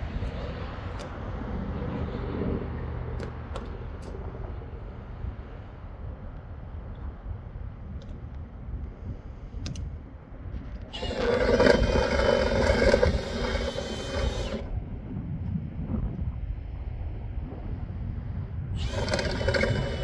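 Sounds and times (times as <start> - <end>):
small electric motor whirring: 10.9 - 14.8, 18.8 - 20.0.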